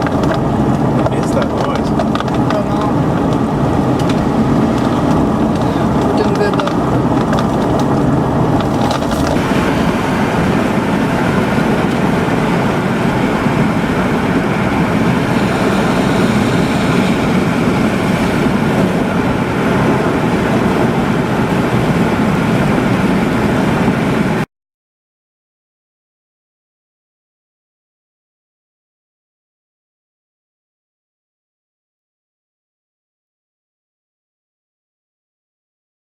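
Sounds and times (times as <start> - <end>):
road noise: 0.0 - 24.5
vehicle engine rumble: 0.0 - 24.5.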